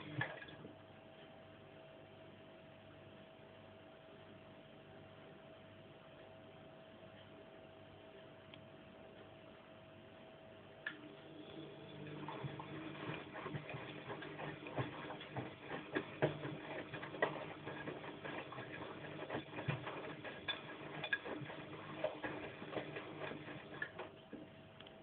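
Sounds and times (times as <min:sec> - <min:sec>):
washing machine drum turning: 0:00.0 - 0:00.6, 0:11.8 - 0:24.2
motor hum: 0:10.8 - 0:24.5.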